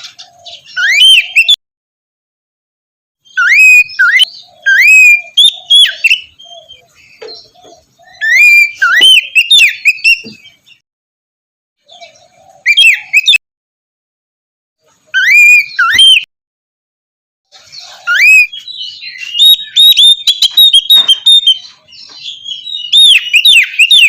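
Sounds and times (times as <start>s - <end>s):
bird singing whistled phrases: 0.6s - 1.6s, 3.2s - 6.8s, 7.4s - 10.5s, 12.6s - 13.4s, 15.1s - 16.3s, 17.9s - 24.0s.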